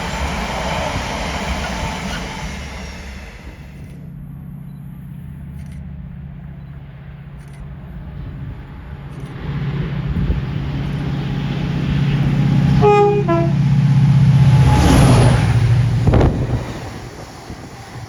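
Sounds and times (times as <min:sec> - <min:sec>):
train passing rumble: 0:00.0 - 0:18.0
two-tone train horn: 0:12.7 - 0:13.8.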